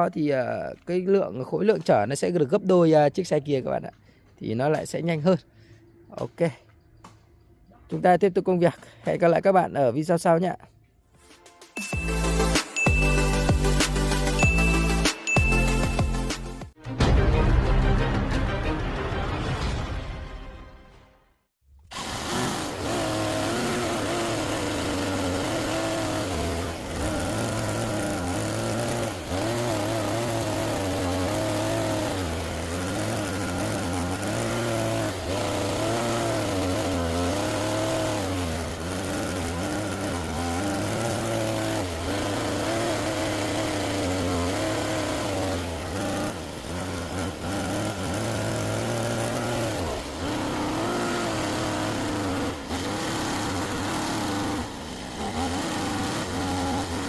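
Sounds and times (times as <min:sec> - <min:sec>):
toy excavator motor running: 0:21.9 - 0:57.0.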